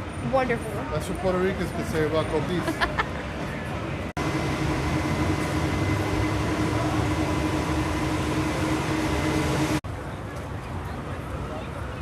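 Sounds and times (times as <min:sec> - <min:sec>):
mechanical rumble with droning hum: 0:04.2 - 0:09.8.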